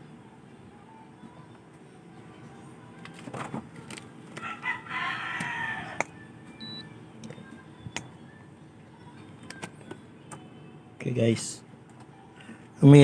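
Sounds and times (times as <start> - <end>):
rooster crowing: 4.4 - 6.3.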